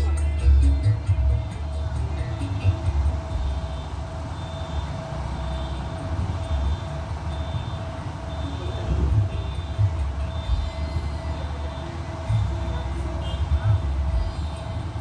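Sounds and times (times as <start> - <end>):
faint beep: 3.6 - 13.8.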